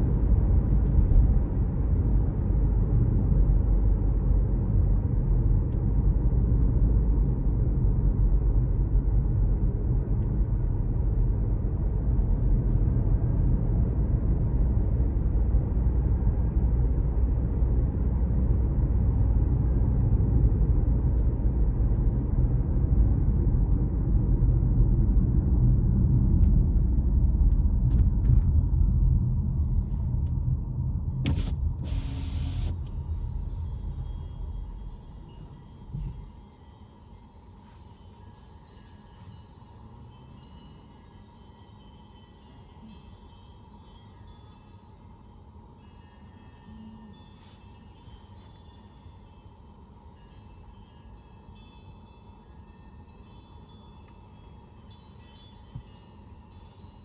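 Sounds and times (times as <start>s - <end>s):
car engine and tyres rumbling: 0.0s - 36.7s
brief hiss: 31.3s - 33.6s.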